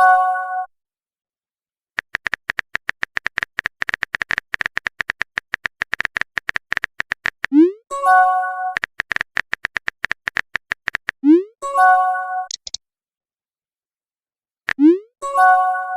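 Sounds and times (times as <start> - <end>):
rapid typing clicks: 2.0 - 7.6, 8.8 - 11.2, 12.5 - 12.8.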